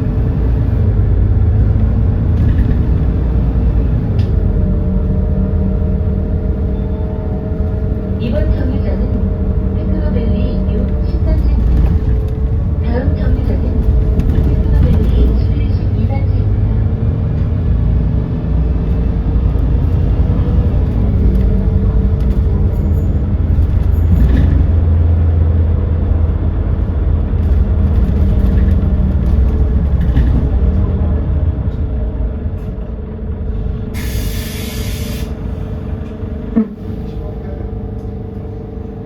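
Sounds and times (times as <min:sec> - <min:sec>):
bus engine drone: 0:00.0 - 0:39.0
compressed air hiss: 0:34.0 - 0:35.4.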